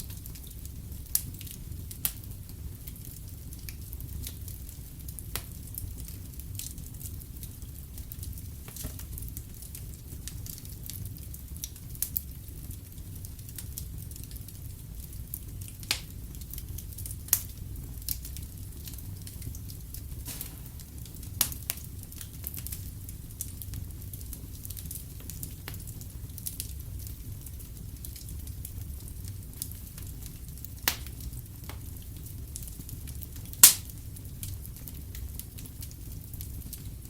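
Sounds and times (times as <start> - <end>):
wood fire crackling: 0.0 - 37.0
sharp pops of fire: 5.3 - 5.8, 8.6 - 10.4, 15.8 - 16.2, 17.1 - 25.9, 29.6 - 32.0, 33.1 - 34.0.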